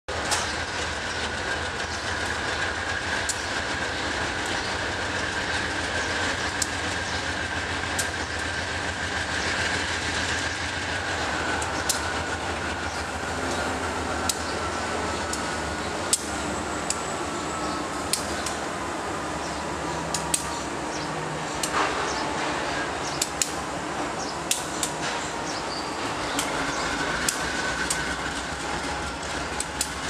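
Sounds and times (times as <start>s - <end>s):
freight train rumble: 0.1s - 30.0s
high whine: 0.1s - 30.0s
sharp clicks: 11.6s - 12.1s, 13.5s - 14.6s, 16.1s - 17.0s, 18.0s - 18.6s, 20.0s - 20.6s, 23.1s - 23.6s, 24.4s - 25.0s, 27.2s - 28.2s, 29.2s - 30.0s.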